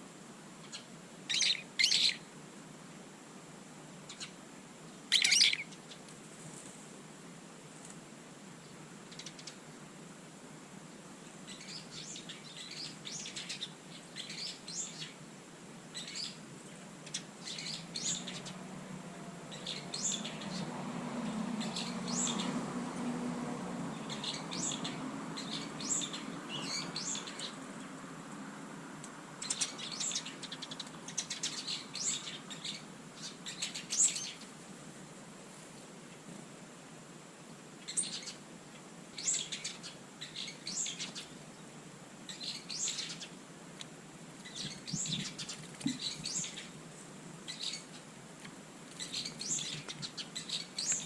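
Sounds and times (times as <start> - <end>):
small birds chirping: 0.6 - 2.3, 4.0 - 6.1, 8.6 - 9.7, 11.2 - 15.2, 15.9 - 18.7, 19.5 - 20.7, 21.5 - 22.6, 23.9 - 28.1, 29.4 - 34.6, 37.5 - 43.4, 44.4 - 46.8, 47.4 - 51.0.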